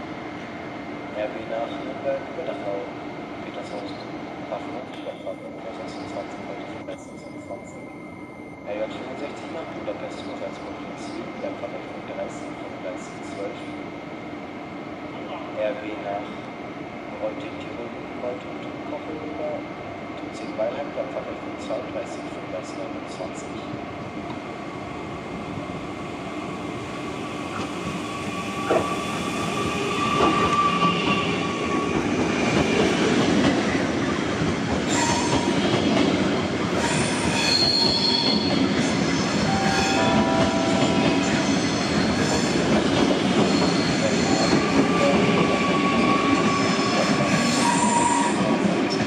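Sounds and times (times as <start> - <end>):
train rolling slowly: 0.1 - 49.0
wheels squealing on rails: 27.5 - 32.9, 34.9 - 35.6, 36.7 - 42.7, 43.4 - 48.6.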